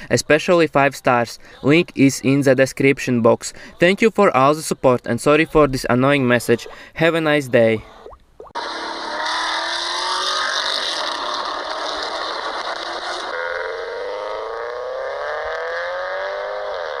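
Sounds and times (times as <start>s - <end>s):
car engine accelerating: 8.6s - 17.0s.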